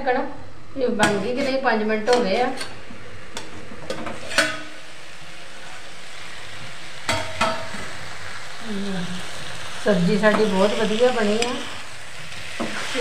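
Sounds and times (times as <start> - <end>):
vegetables sizzling in a pan: 0.8 - 13.0.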